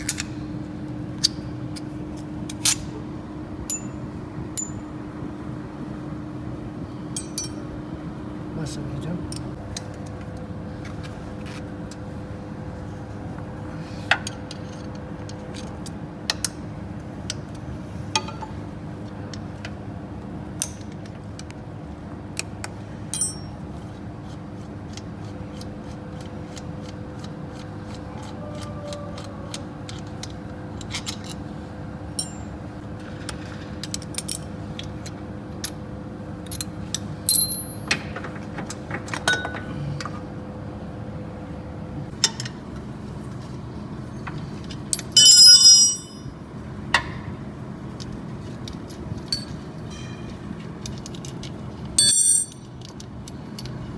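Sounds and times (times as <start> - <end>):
steady hum: 0.0 - 15.2, 34.0 - 50.6
metal tools clinking: 3.7 - 4.0, 7.2 - 7.6, 23.1 - 23.6, 36.5 - 38.1, 45.0 - 46.3, 48.7 - 53.8.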